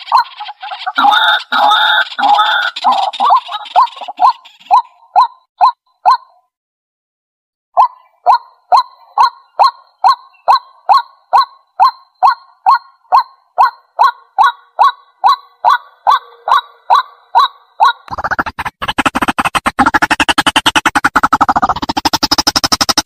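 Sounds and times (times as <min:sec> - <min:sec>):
waterhen calling: 0:00.0 - 0:05.8
rapid dense sound: 0:18.1 - 0:23.0.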